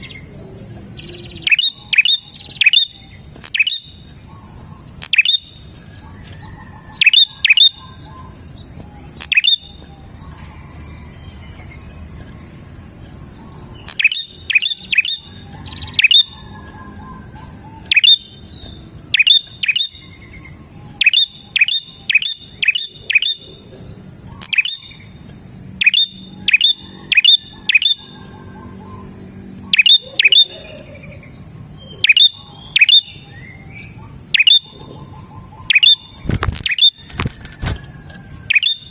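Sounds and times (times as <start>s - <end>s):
bird sharp chirps: 0.0s - 10.5s, 13.3s - 23.6s, 24.2s - 25.2s, 25.8s - 37.1s, 38.4s - 38.9s.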